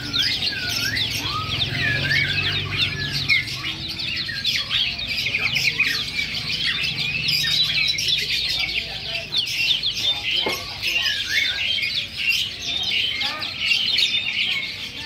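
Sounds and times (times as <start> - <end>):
looping whistled bird notes: 0.0 - 8.3
songbirds chirping: 0.0 - 15.0.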